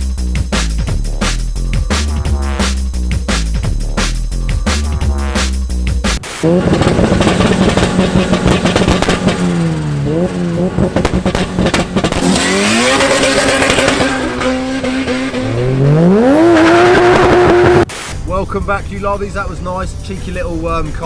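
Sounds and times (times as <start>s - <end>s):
car engine revving: 6.2s - 18.1s.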